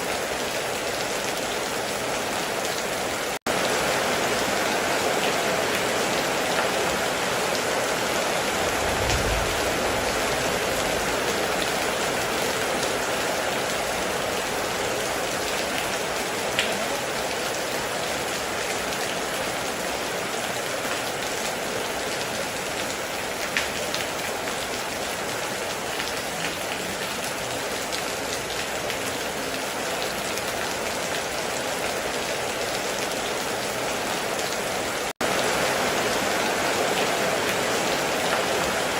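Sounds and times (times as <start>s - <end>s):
heavy rain: 0.0s - 38.9s
low rumble: 8.6s - 11.5s.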